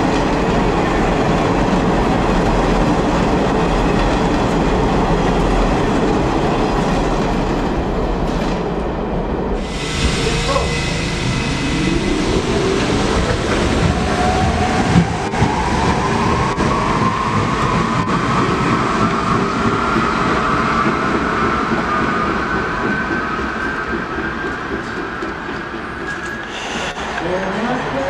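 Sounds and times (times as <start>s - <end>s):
wheels rumbling on rail: 0.0s - 28.0s
train whine rising in pitch: 9.6s - 28.0s.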